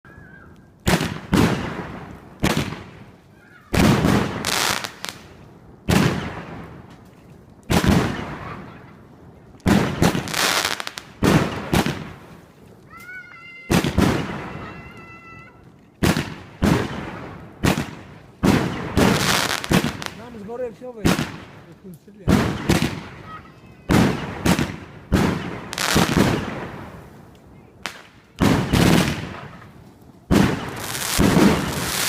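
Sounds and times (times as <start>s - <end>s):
fireworks bangs with crackle: 0.8s - 32.0s.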